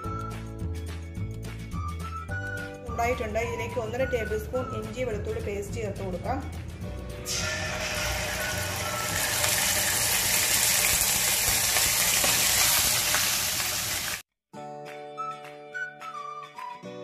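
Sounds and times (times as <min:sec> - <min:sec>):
flute-like background music: 0:00.0 - 0:10.4, 0:14.7 - 0:17.0
paste sizzling in oil: 0:07.3 - 0:14.2.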